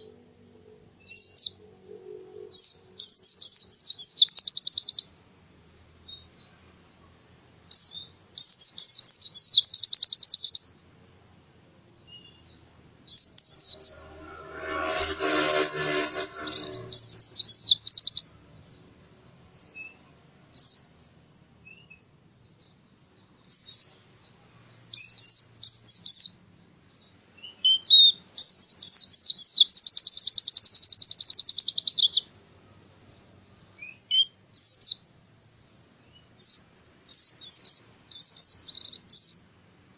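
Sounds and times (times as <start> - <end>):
bird singing high trills: 0.0 - 6.5, 7.7 - 10.8, 11.9 - 20.0, 20.6 - 32.3
low rough sound: 13.3 - 17.8.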